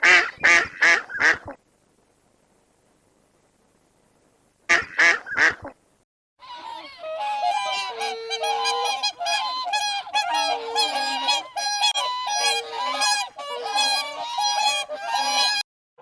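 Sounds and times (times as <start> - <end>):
goose calling: 0.0 - 1.6, 4.7 - 5.7, 6.4 - 15.6
flock of geese honking: 6.4 - 15.6.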